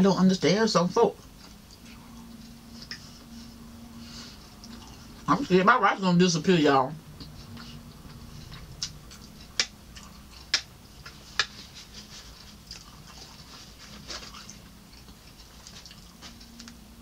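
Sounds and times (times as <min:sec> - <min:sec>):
faint steady hum: 0:00.0 - 0:17.0
chewing rice: 0:04.4 - 0:05.3, 0:07.2 - 0:16.8.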